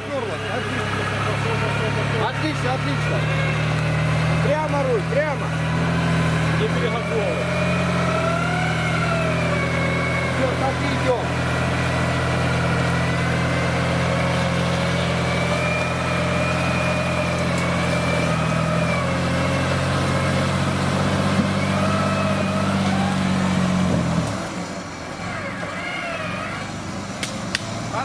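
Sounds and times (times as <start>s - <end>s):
suv engine pulling under load: 0.0s - 28.0s.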